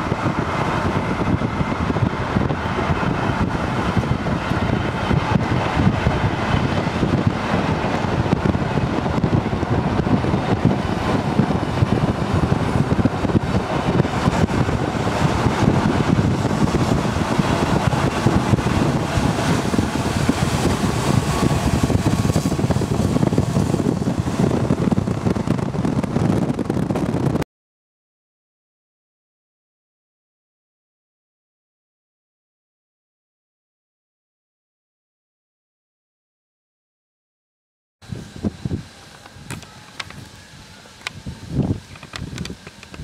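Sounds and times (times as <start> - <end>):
train wheels rumbling on track: 0.0 - 27.4, 38.0 - 43.0
wind on microphone: 0.0 - 27.4, 38.0 - 43.0.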